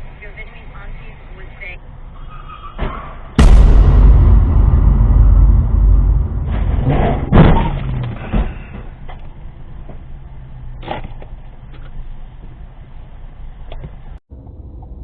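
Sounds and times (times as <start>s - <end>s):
hard bang: 3.4s - 8.9s
car collision rumble: 3.4s - 9.2s.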